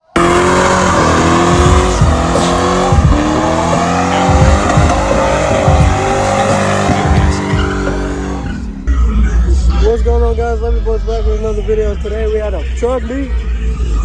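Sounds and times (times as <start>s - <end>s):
car engine running: 0.0s - 14.0s
car tires squealing: 0.1s - 8.9s.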